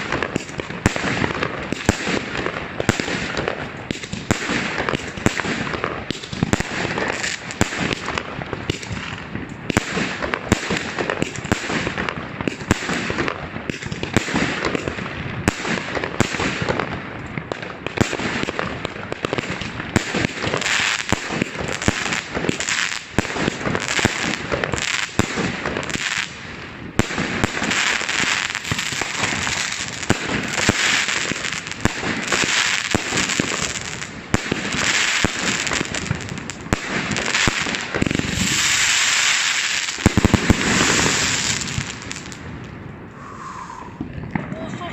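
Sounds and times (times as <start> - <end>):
fireworks and firecrackers banging: 0.0 - 44.9.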